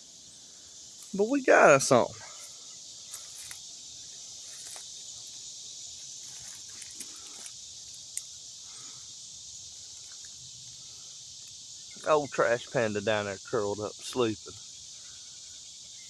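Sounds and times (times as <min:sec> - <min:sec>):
insects chirring: 0:00.0 - 0:16.0
faint clicks and rustles: 0:02.4 - 0:03.7, 0:04.3 - 0:05.4, 0:06.0 - 0:08.5.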